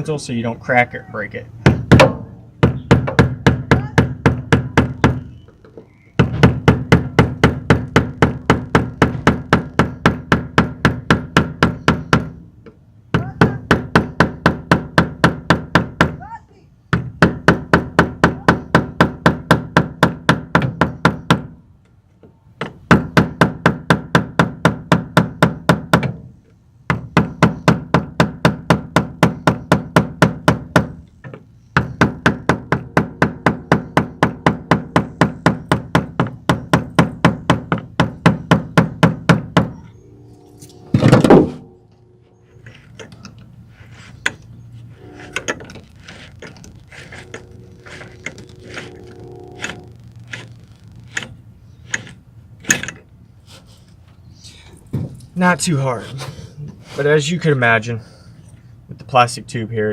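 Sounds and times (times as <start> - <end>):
quiet handling knocks: 54.8 - 55.3.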